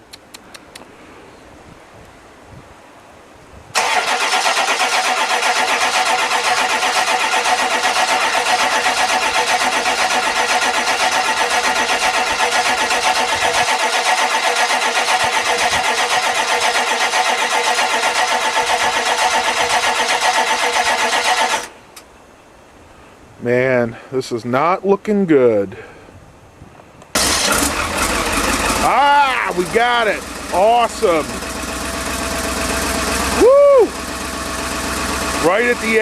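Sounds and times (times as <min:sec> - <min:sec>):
starter motor cranking engine: 0:03.8 - 0:21.8, 0:27.2 - 0:36.0.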